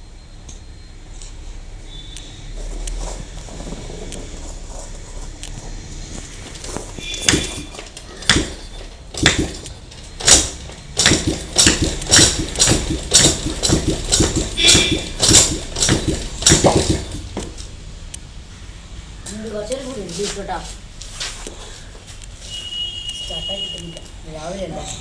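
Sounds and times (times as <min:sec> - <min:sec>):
motorcycle engine cranking: 0:02.5 - 0:17.8.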